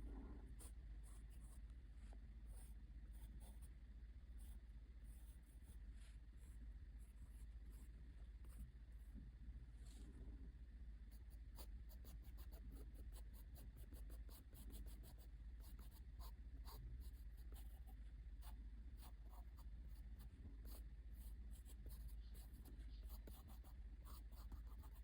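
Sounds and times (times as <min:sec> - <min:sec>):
steady low hum: 0:00.0 - 0:25.0
drawing tool scratching paper: 0:21.6 - 0:25.0.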